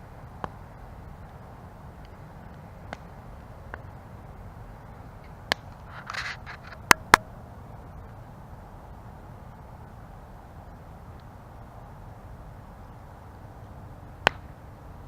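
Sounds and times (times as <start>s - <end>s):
burning wood popping and crackling: 0.0s - 8.2s
campfire rumbling: 0.0s - 15.0s.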